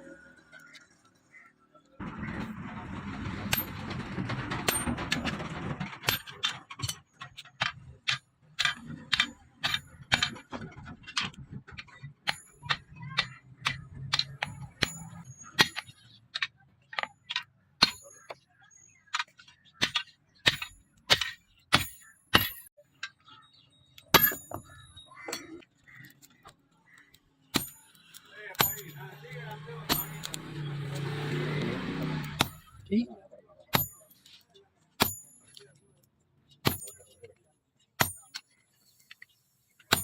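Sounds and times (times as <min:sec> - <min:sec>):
hammer striking steel: 0:12.3 - 0:16.0, 0:19.8 - 0:22.7, 0:24.1 - 0:25.4, 0:27.5 - 0:32.8, 0:33.7 - 0:34.2, 0:35.0 - 0:35.6, 0:36.6 - 0:37.2, 0:38.0 - 0:38.4.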